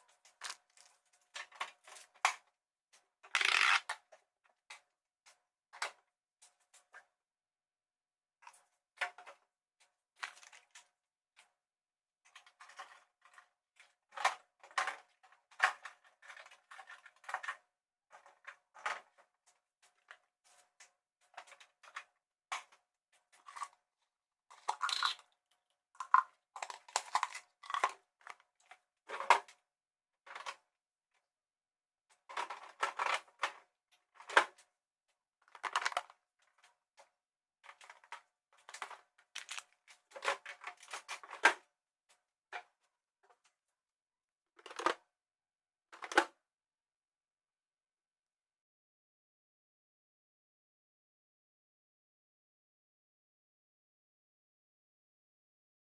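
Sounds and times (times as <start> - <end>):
containers clattering and rustling: 24.5 - 25.2, 37.7 - 41.5.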